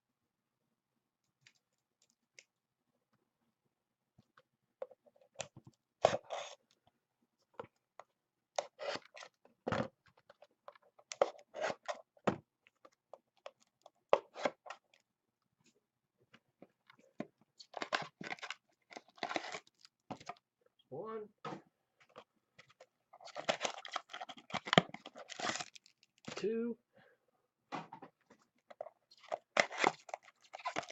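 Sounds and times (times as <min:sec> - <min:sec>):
plastic packaging crackling: 0:23.2 - 0:26.3, 0:29.1 - 0:30.9.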